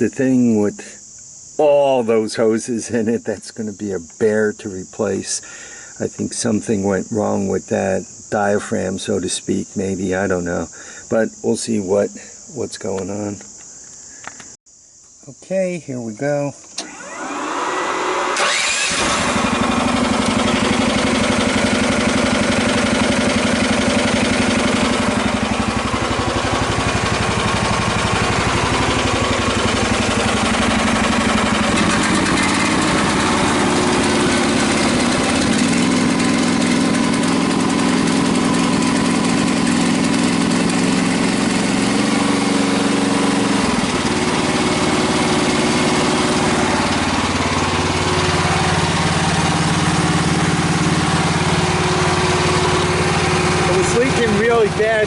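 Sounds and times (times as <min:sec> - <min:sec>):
excavator engine running: 0:16.7 - 0:55.0.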